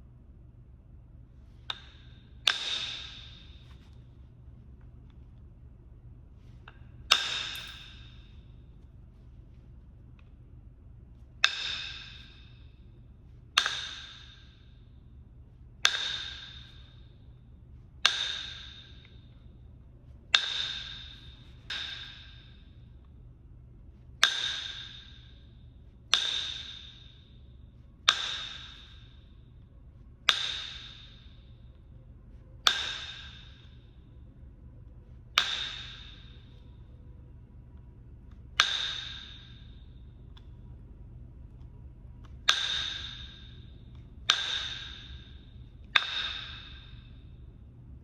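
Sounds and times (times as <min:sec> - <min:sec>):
stone flintknapping strikes: 0:07.1 - 0:07.9, 0:11.4 - 0:12.2, 0:18.0 - 0:18.7, 0:26.1 - 0:26.9, 0:28.1 - 0:28.9, 0:35.4 - 0:36.1, 0:38.6 - 0:39.3, 0:42.2 - 0:43.3, 0:43.9 - 0:45.2, 0:46.0 - 0:46.8.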